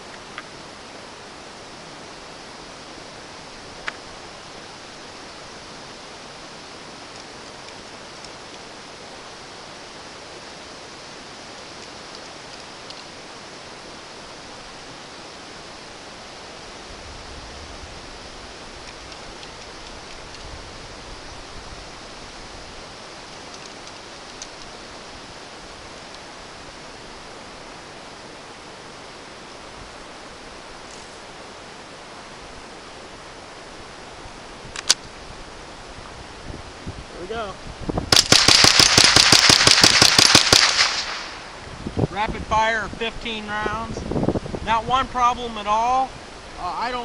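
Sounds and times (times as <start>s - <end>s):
faint ticks: 0.0s - 0.5s, 3.8s - 4.1s, 7.0s - 8.7s, 11.5s - 13.2s, 18.8s - 20.6s, 23.3s - 24.8s, 26.0s - 26.3s
low wind gusts rumbling: 0.0s - 47.0s
wind hiss on microphone: 0.0s - 47.0s.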